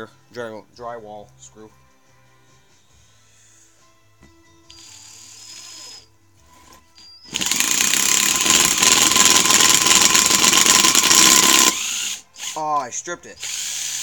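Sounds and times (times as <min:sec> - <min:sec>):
impact driver rattling: 0:07.2 - 0:12.2.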